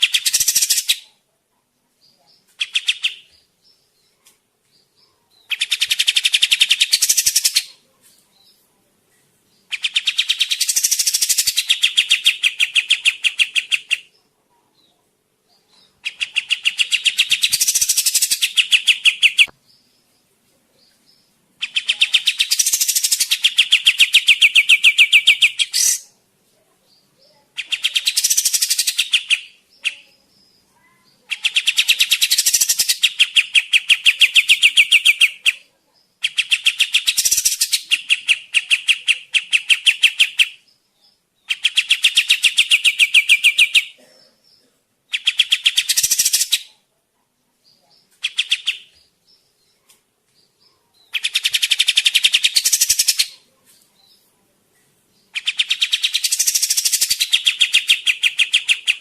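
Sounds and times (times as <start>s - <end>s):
bird singing rapid repeated notes: 0.0s - 1.0s, 2.6s - 4.1s, 4.8s - 7.7s, 9.6s - 14.2s, 15.8s - 20.2s, 21.0s - 26.1s, 27.3s - 30.6s, 31.2s - 35.6s, 36.2s - 43.9s, 45.1s - 46.7s, 48.2s - 49.8s, 51.1s - 53.4s, 55.2s - 59.0s.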